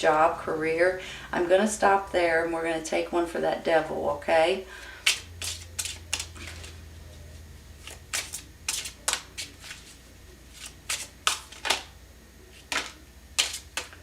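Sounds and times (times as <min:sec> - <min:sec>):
cards being shuffled: 0:05.0 - 0:06.8, 0:07.8 - 0:11.9, 0:12.5 - 0:14.0.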